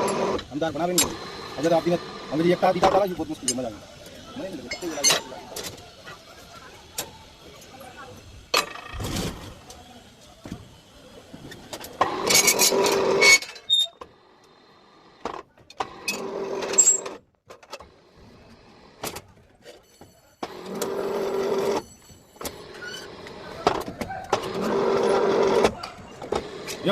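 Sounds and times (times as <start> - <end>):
bending machine humming: 0.0 - 7.6.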